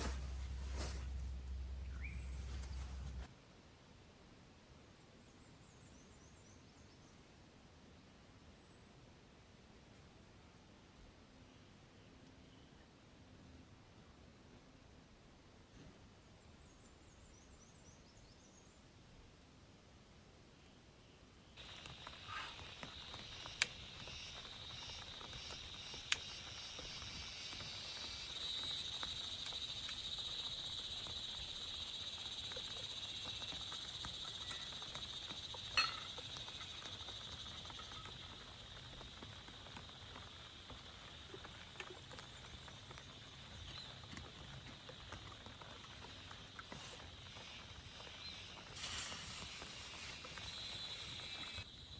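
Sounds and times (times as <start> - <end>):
high-pitched animal chorus: 21.6 - 48.7.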